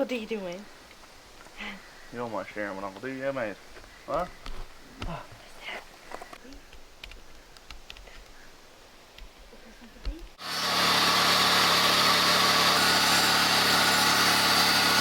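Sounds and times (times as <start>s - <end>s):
faint clicks: 6.1s - 8.4s
power tool motor running: 10.4s - 15.0s.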